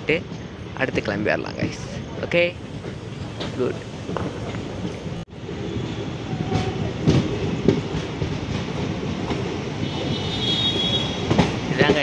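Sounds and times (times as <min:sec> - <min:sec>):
train wheels rumbling on rails: 0:00.0 - 0:12.0
wheels clacking over rail joints: 0:11.0 - 0:12.0.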